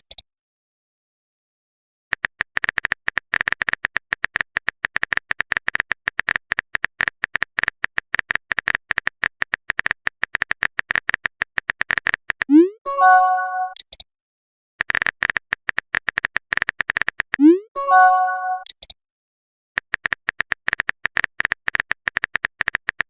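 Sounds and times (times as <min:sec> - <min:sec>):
short clicking blips: 0:17.3 - 0:19.0.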